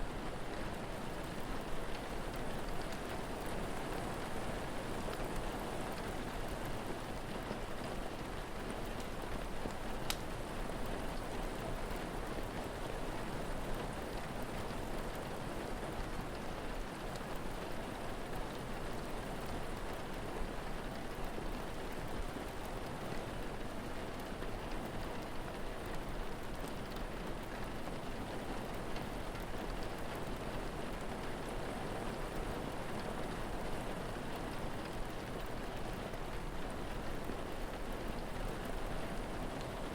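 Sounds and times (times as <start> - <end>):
steady rain falling: 0.0 - 39.9
faint clicks: 10.1 - 10.3.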